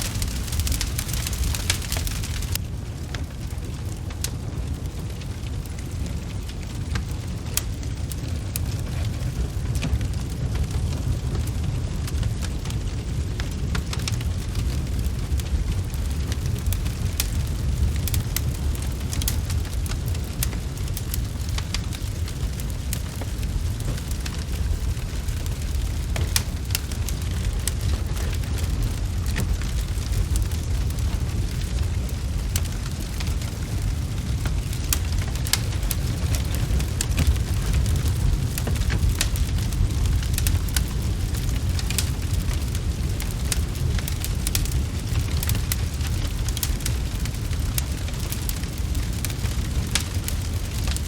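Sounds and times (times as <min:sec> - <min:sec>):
pops and snaps of fire: 0:00.0 - 0:51.0
steady low rumble: 0:00.0 - 0:51.0
wood fire crackling: 0:00.0 - 0:51.0.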